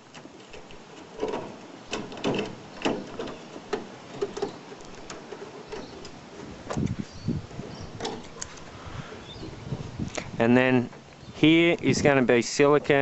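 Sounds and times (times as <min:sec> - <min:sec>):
gutter mesh clicking on metal roof: 0:00.0 - 0:09.8.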